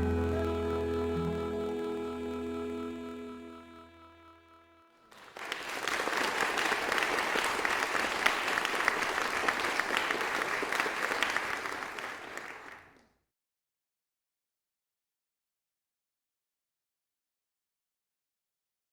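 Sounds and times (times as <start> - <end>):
song: 0.0 - 5.0
crowd applause: 5.1 - 13.0.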